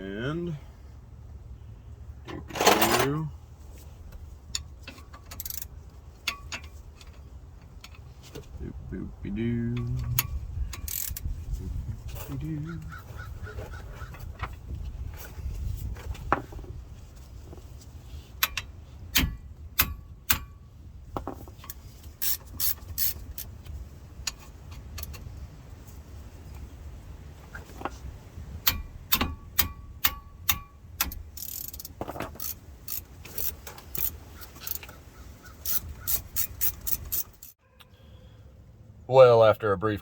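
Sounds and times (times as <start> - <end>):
hand ratchet clicking: 5.2 - 5.7, 9.9 - 11.3, 22.2 - 23.5, 28.6 - 37.6
steady low rumble: 5.8 - 13.5.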